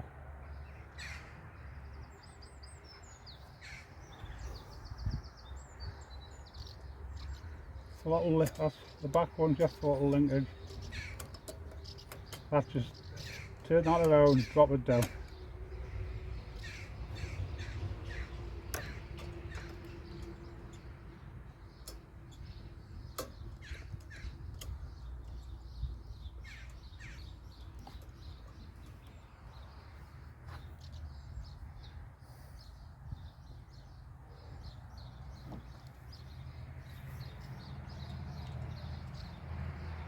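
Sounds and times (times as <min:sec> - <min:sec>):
crows cawing: 0:01.0 - 0:01.4, 0:03.6 - 0:04.0, 0:10.9 - 0:11.4, 0:13.2 - 0:13.6, 0:16.6 - 0:19.7.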